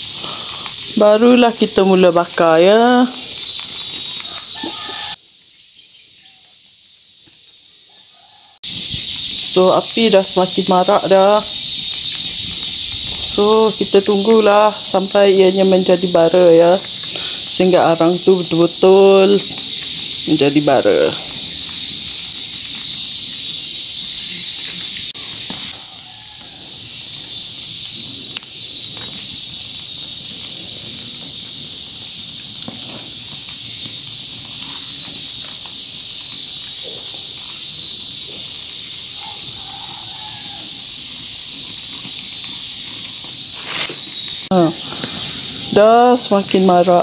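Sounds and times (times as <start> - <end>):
insects chorus: 0.0 - 47.0.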